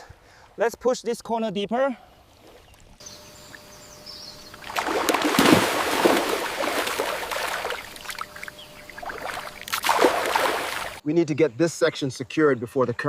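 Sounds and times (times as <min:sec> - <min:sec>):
water splashing and sloshing: 0:04.5 - 0:11.0.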